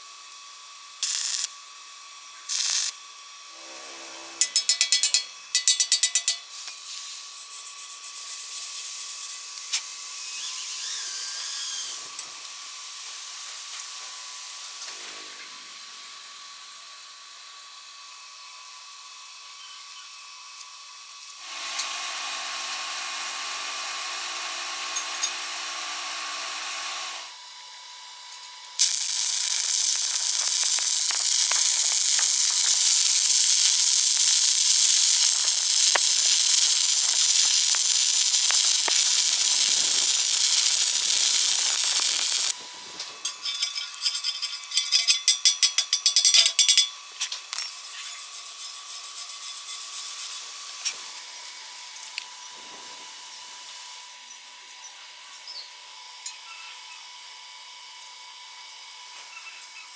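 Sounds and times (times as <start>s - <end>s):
welding arc crackling and hissing: 1.0s - 1.7s, 2.4s - 3.1s, 6.9s - 16.2s, 21.2s - 27.3s, 28.8s - 46.0s, 46.7s - 54.1s.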